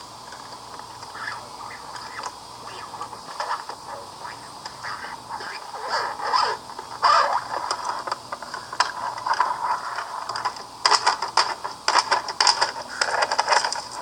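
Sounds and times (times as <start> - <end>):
plastic parts rattling and scraping: 5.4 - 14.0.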